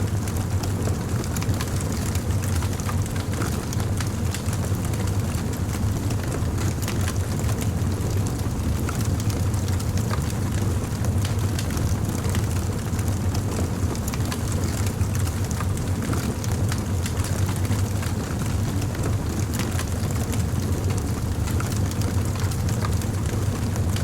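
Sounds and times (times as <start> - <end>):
wood fire crackling: 0.1 - 24.0.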